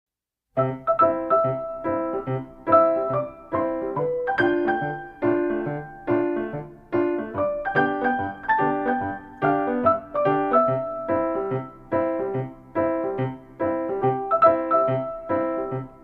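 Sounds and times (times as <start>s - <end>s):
light piano tune: 0.6s - 16.0s.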